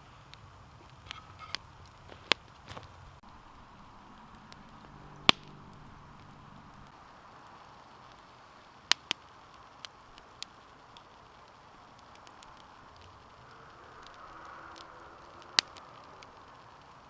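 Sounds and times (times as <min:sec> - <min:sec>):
campfire hissing: 0:00.0 - 0:17.0
wood popping and cracking: 0:00.8 - 0:03.2.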